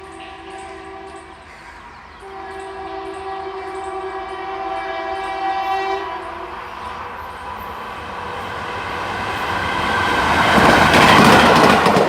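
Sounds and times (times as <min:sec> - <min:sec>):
train horn blast: 0:00.0 - 0:01.5, 0:02.2 - 0:06.9
train rumble: 0:00.0 - 0:12.0
wheels clicking over rail joints: 0:09.0 - 0:12.0.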